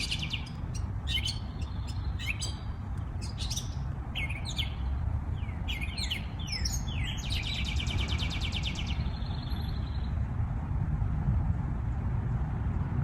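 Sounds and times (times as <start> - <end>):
songbird chirping and trilling: 0.0 - 10.2
steady low rumble: 0.0 - 13.0.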